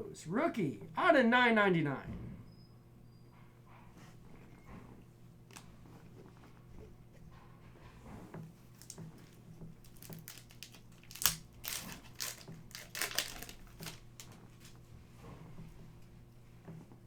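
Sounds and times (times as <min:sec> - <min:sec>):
plastic wrapper crinkling: 0:05.5 - 0:05.7, 0:08.6 - 0:14.8.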